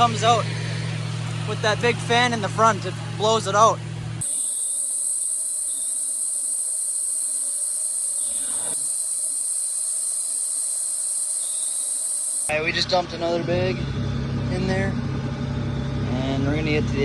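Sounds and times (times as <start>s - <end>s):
crickets chirring: 4.2s - 12.6s.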